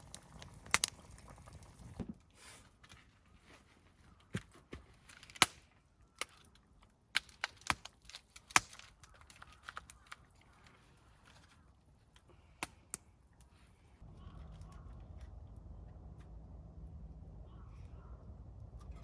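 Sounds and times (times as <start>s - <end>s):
sharp knocks and snaps: 6.2s - 10.3s.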